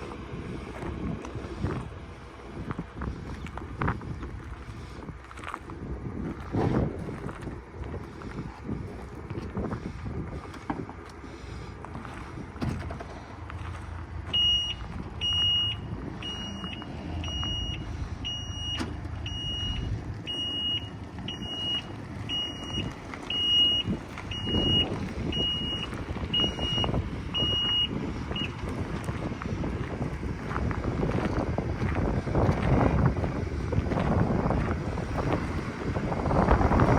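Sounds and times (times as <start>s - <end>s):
wind on microphone: 0.0s - 11.0s, 22.2s - 36.9s
truck engine running: 0.0s - 36.9s
high electronic warning beeps: 14.3s - 28.6s.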